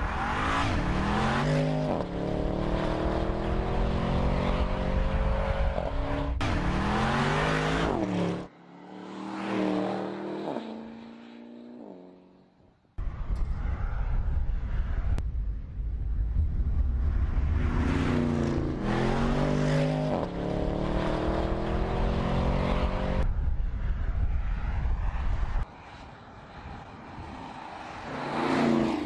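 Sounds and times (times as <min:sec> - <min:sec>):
car engine accelerating: 0:00.0 - 0:12.0, 0:16.4 - 0:23.3
rush of noise: 0:13.0 - 0:29.0.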